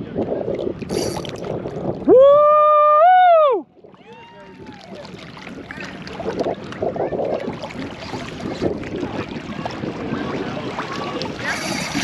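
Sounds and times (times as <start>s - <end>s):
water splashing against boat: 0.0s - 2.1s, 3.8s - 12.0s.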